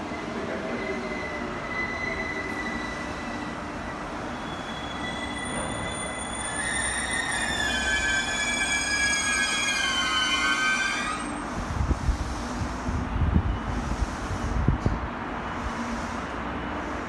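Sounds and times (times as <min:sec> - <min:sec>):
train wheels on track: 0:00.0 - 0:17.0
high squealing tones: 0:00.8 - 0:11.4.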